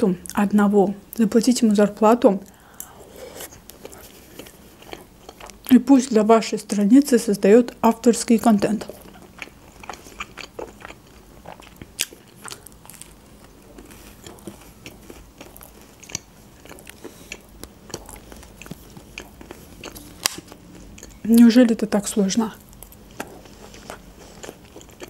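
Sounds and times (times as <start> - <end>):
mouth chewing clicks and smacks: 9.0 - 12.7, 22.8 - 25.0.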